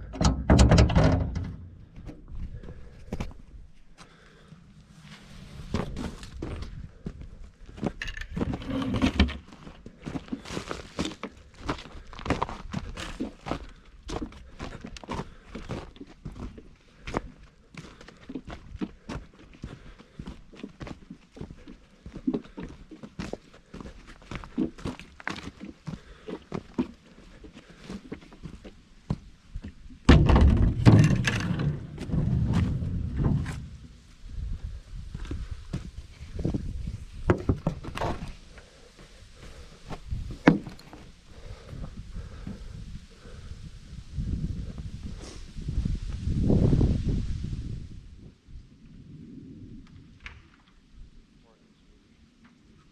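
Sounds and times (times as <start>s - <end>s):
heavy thumps and clanking: 0.0s - 2.4s, 30.1s - 34.1s
knocks and clunks: 0.0s - 2.4s, 30.1s - 34.0s, 40.2s - 41.0s
objects clattering: 8.0s - 9.5s, 30.1s - 34.0s
footsteps: 27.6s - 34.3s.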